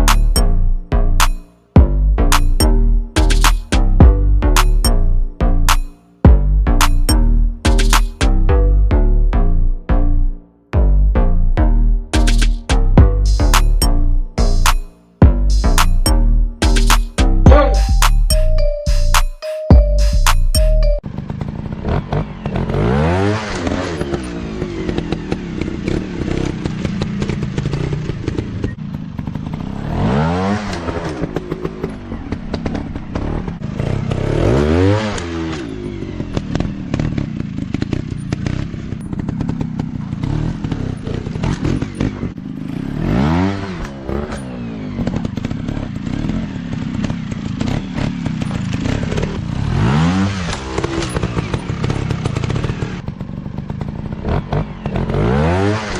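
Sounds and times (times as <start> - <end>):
dirt bike engines revving: 21.2 - 55.9.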